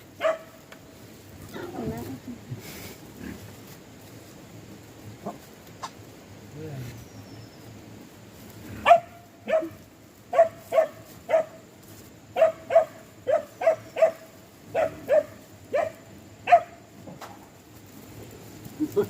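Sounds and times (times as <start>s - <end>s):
dog barking: 0.2s - 0.6s, 8.8s - 11.6s, 12.3s - 16.8s.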